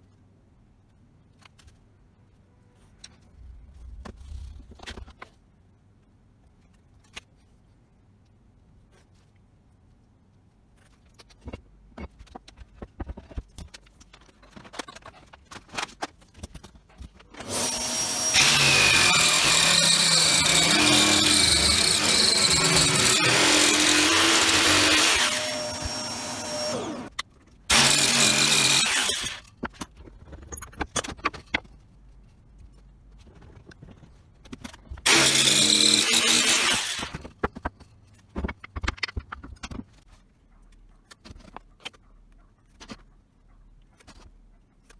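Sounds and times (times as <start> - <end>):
power tool running: 17.4 - 27.1, 27.7 - 29.5, 35.1 - 37.2.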